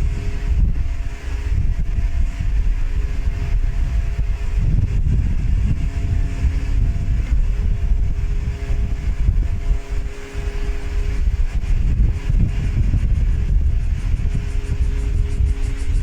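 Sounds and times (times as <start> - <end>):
distant engine hum: 0.0 - 16.0
wind buffeting microphone: 0.0 - 16.0.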